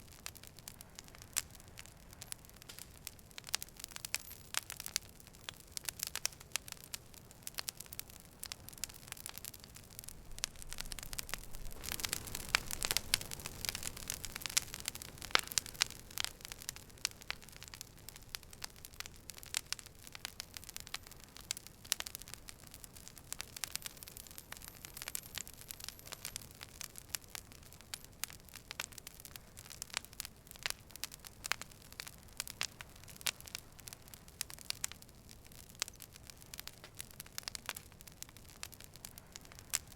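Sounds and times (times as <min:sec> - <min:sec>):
campfire wood crackling and popping: 0:00.0 - 0:39.9
low rush of flame: 0:00.1 - 0:29.0.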